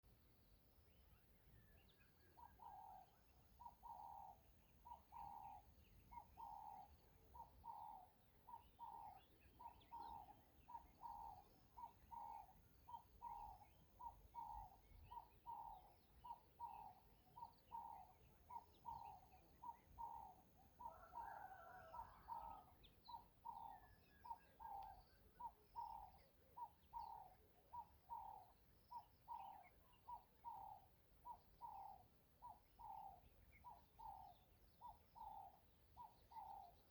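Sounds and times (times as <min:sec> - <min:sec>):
faint bird chirps: 0:00.1 - 0:36.9
repeated bird call: 0:03.6 - 0:36.7.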